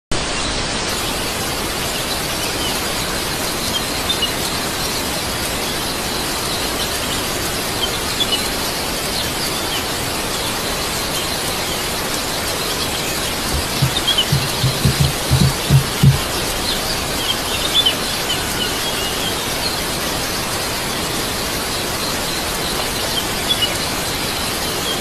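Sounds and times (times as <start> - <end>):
outdoor hiss: 11.6 - 20.7
bird chirps: 12.9 - 16.3.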